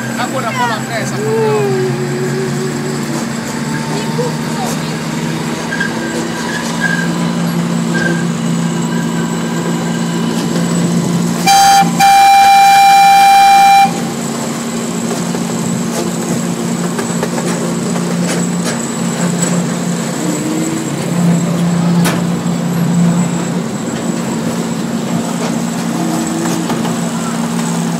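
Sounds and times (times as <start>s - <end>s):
train running hum: 0.0s - 27.9s
train horn: 11.4s - 14.2s.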